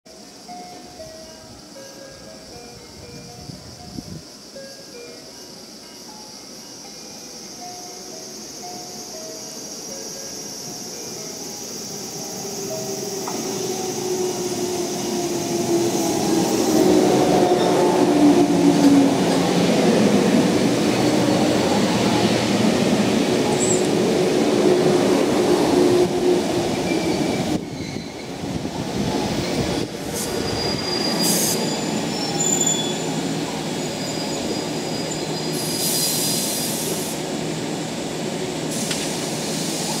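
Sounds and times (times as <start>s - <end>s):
standing train hum: 0.1s - 40.0s
train wheels rumbling: 6.4s - 40.0s
short air hisses: 35.5s - 37.2s.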